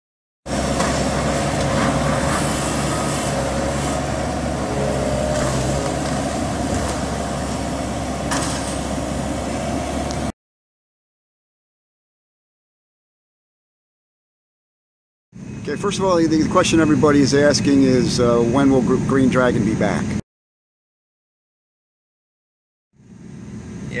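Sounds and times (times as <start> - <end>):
heavy vehicle engine humming: 0.5 - 10.3, 23.0 - 24.0
steady whine: 0.5 - 10.3, 15.4 - 20.2.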